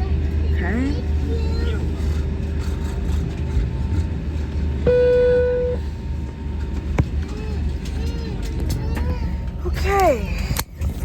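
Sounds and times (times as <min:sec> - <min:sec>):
airliner cabin rumble: 0:00.0 - 0:11.0
loud steady tone: 0:04.8 - 0:05.9.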